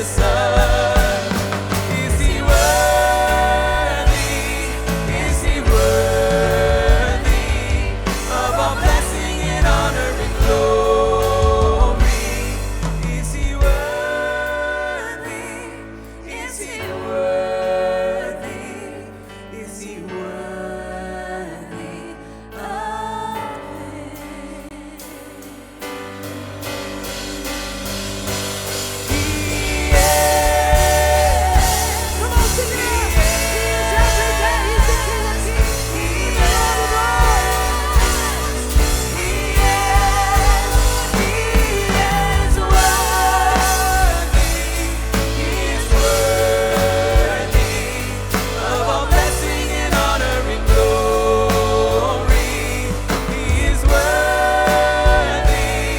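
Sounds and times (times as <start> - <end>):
live band playing: 0.0 - 14.0, 25.8 - 55.9
drums and cymbals: 0.0 - 15.0, 25.0 - 55.9.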